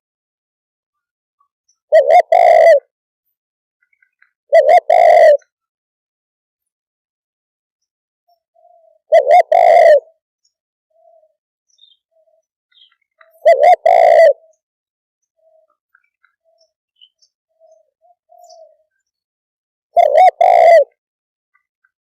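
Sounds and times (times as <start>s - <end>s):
dove cooing: 1.9s - 2.9s, 4.5s - 5.5s, 8.5s - 10.2s, 10.9s - 14.6s, 17.5s - 19.1s, 20.0s - 21.0s.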